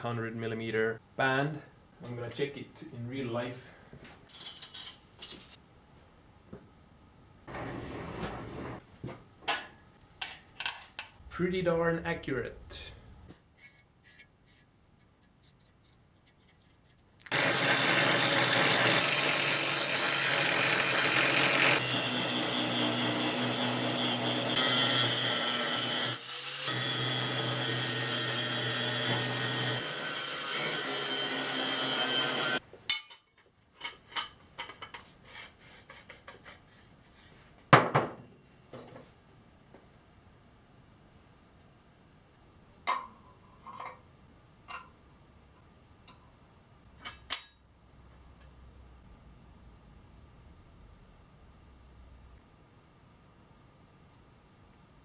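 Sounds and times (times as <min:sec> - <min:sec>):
power tool grinding steel: 0:17.3 - 0:32.6.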